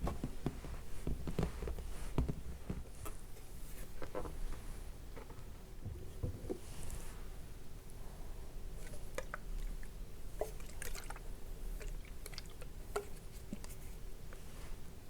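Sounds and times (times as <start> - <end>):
wet squishy liquid drips: 8.8 - 13.8.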